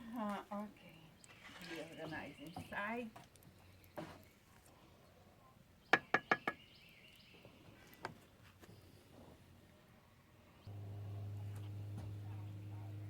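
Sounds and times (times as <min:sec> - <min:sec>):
sharp knocks on hard surface: 0:06.0 - 0:06.6
steady low hum: 0:10.6 - 0:13.0.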